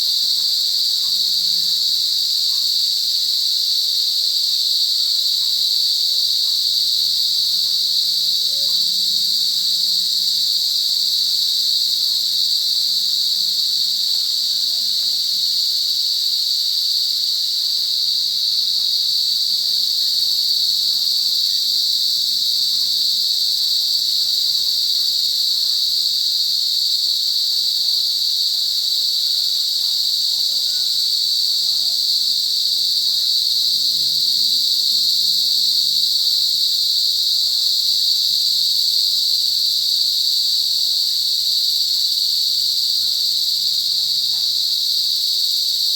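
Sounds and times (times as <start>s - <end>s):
cicadas buzzing: 25.8s - 45.9s.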